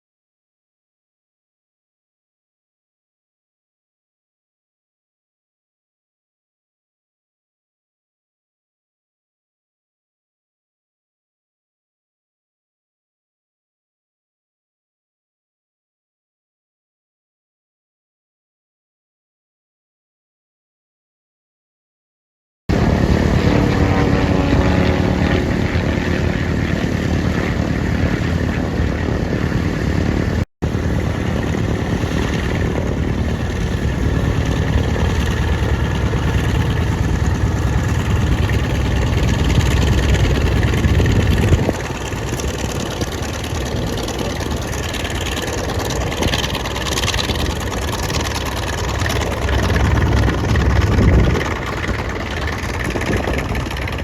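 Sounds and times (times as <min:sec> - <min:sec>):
light aircraft engine and propeller: 0:22.7 - 0:54.0.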